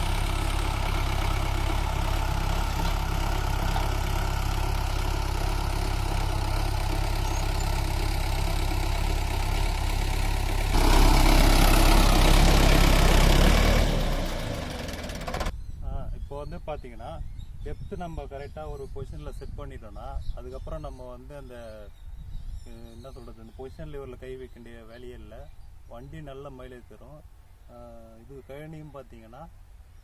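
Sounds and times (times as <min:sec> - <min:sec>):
tractor diesel engine running: 0:00.0 - 0:15.5.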